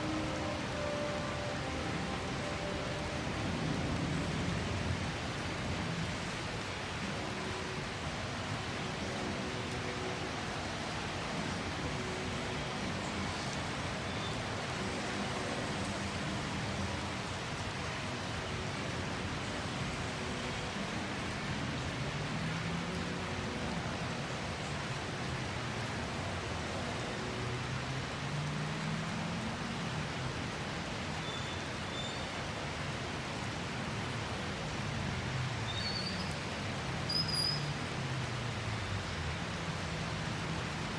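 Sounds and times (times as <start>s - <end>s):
vehicle engines humming: 0.0s - 8.1s
rain hiss: 0.0s - 40.9s.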